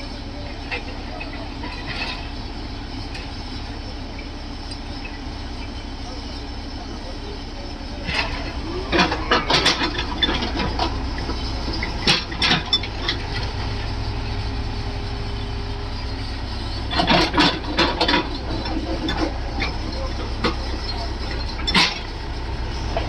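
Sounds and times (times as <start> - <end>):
diesel engine rumbling: 0.0 - 23.0
knocks and clanks: 8.0 - 13.9, 16.2 - 23.0.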